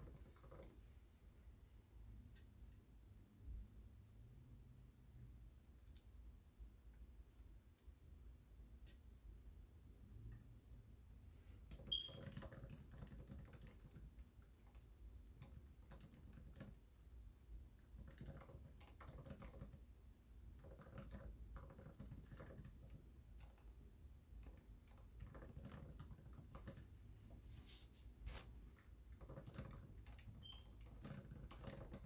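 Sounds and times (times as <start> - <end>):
typing on keyboard: 0.0 - 0.9, 11.6 - 17.1, 17.8 - 27.0, 28.8 - 32.0.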